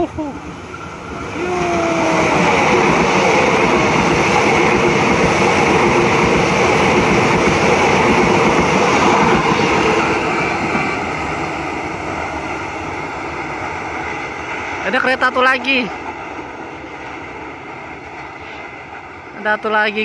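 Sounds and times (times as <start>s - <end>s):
train passing at speed: 0.0s - 20.0s.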